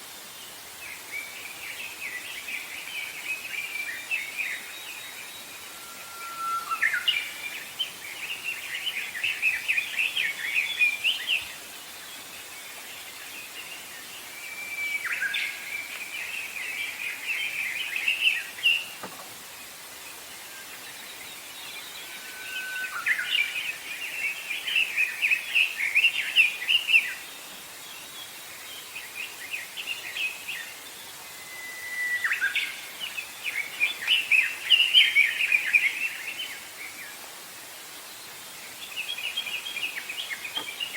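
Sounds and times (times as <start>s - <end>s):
faint background hiss: 0.0s - 40.9s
songbird singing: 0.0s - 40.9s.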